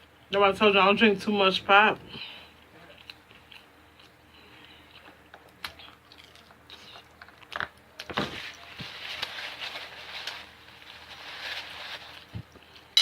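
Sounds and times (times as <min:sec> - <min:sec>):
chewing and biting food: 0:02.7 - 0:07.9.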